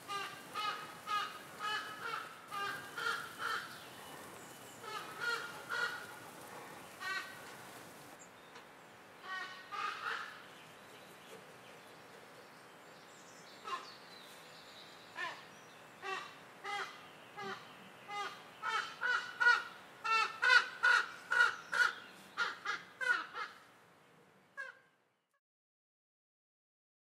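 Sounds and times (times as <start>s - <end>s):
bird calling: 0.0s - 8.2s.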